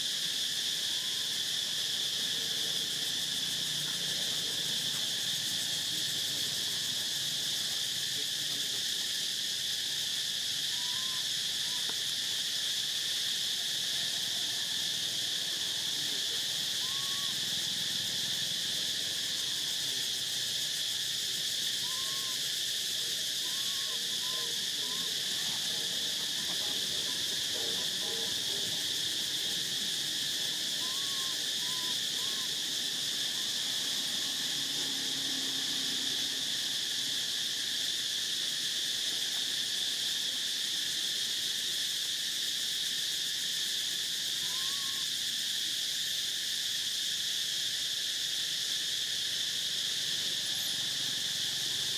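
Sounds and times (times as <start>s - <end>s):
insects chirring: 0.0s - 51.9s
soft arching calls: 1.0s - 1.4s, 10.6s - 12.1s, 16.0s - 18.4s, 21.6s - 34.1s, 44.4s - 45.1s.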